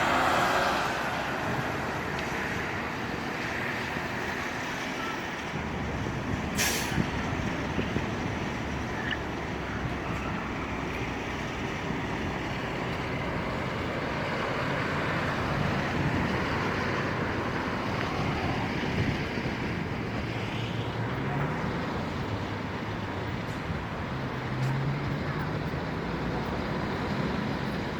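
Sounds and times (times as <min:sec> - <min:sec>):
road traffic: 0:00.0 - 0:27.9
strong wind buffeting microphone: 0:05.6 - 0:10.8, 0:11.4 - 0:24.4.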